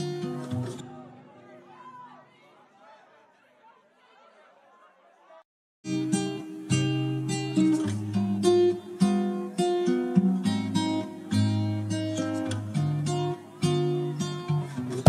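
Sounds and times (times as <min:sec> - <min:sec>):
acoustic guitar music: 0:00.0 - 0:01.5, 0:05.8 - 0:15.0.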